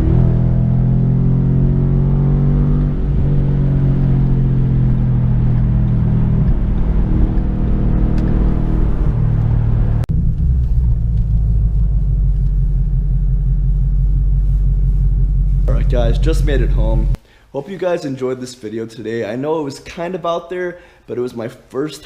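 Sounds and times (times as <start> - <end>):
deep exhaust drone: 0.0 - 17.2.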